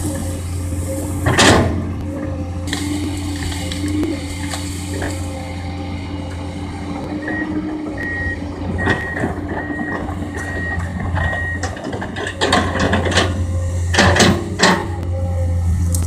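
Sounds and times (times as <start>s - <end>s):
excavator diesel engine running: 0.0s - 16.0s
travel alarm beeping: 7.2s - 11.7s.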